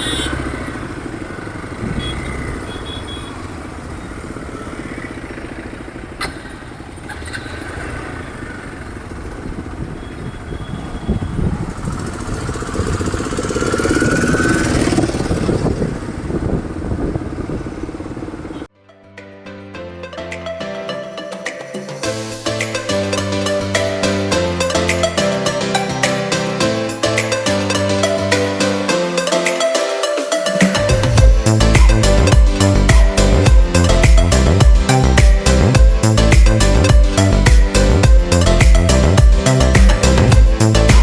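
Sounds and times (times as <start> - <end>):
motorcycle engine running: 0.0 - 18.7, 30.8 - 41.0
road and wind noise: 0.0 - 18.7, 30.8 - 41.0.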